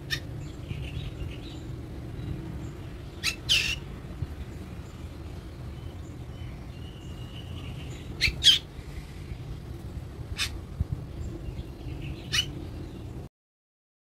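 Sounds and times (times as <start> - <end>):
bird squawking: 0.0 - 0.3, 3.2 - 3.9, 6.8 - 8.7, 10.4 - 10.6, 12.2 - 12.6.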